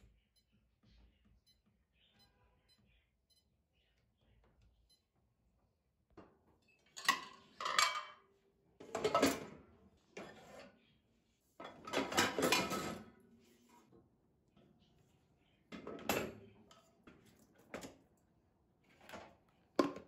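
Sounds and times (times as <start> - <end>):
objects clattering and rustling: 6.9 - 8.2, 8.8 - 9.6, 11.6 - 13.1.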